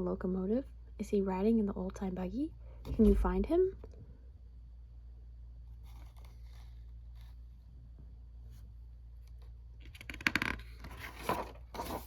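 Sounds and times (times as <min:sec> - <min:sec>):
steady low hum: 0:00.0 - 0:05.8
book page rustling: 0:05.8 - 0:07.4, 0:10.8 - 0:12.0.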